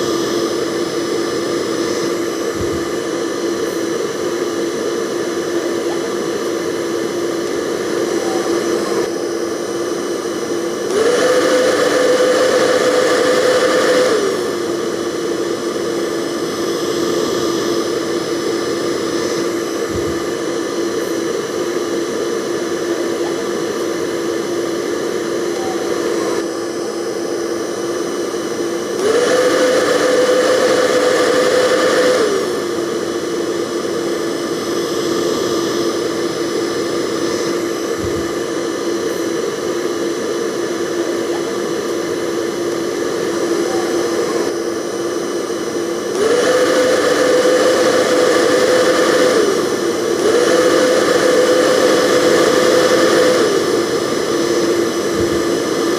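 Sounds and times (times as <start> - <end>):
hair dryer running: 0.0 - 55.9.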